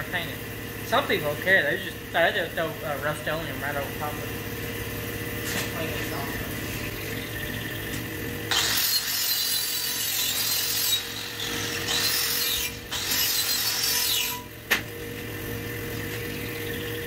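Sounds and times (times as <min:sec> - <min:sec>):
steady hum: 0:00.0 - 0:17.0
angle grinder wire brushing steel: 0:08.5 - 0:14.6.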